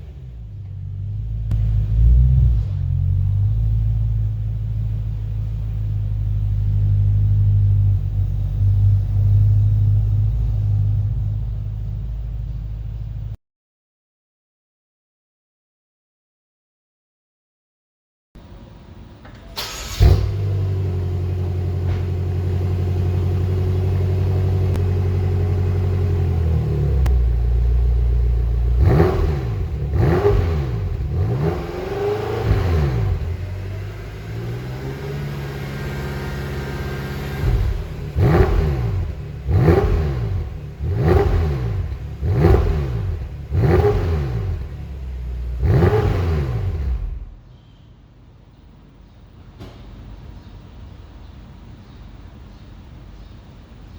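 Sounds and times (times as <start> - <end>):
car engine starting: 0.0 - 13.4, 18.4 - 47.4
engine idling: 0.0 - 13.4, 18.4 - 47.4
engine revving through exhaust: 0.0 - 13.4, 20.0 - 47.4.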